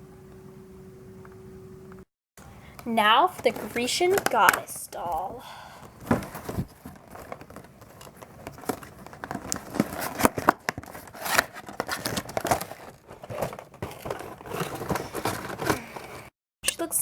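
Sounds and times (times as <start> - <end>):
packaging crinkling: 3.1 - 5.2, 5.8 - 16.2.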